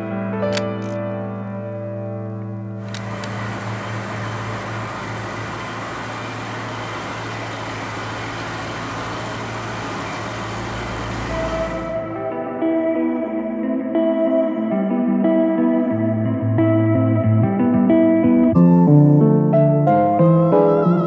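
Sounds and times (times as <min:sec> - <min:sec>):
car engine rumbling: 0:02.8 - 0:12.3
click: 0:02.9 - 0:03.4.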